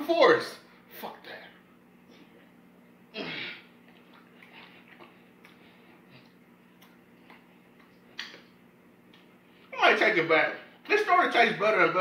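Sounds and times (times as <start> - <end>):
chewing honeycomb: 3.8 - 9.4
wet mouth clicks and smacks: 3.9 - 5.6, 6.2 - 8.5.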